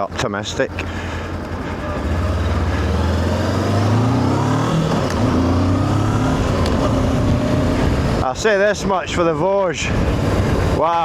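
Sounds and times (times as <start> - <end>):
motorcycle engine accelerating: 0.6 - 8.4, 10.0 - 10.8
wind noise: 6.0 - 11.0.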